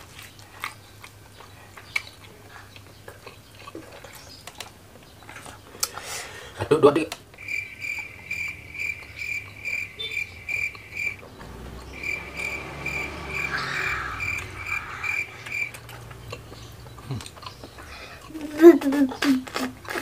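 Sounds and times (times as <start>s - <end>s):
cricket chirping: 7.4s - 17.1s.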